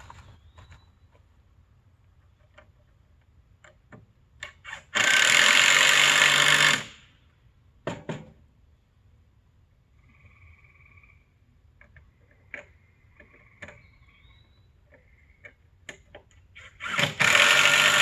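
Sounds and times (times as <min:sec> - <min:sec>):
small power tool running: 0:16.8 - 0:18.0.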